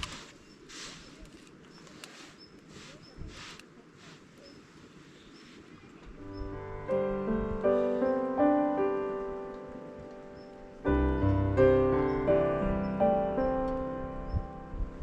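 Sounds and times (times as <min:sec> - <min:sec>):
faint hiss: 0:00.0 - 0:15.0
solo piano music: 0:06.2 - 0:15.0.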